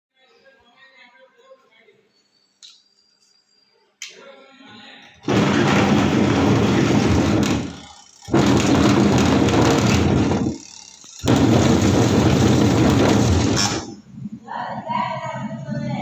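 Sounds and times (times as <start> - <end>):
washing machine motor running: 5.3 - 13.9.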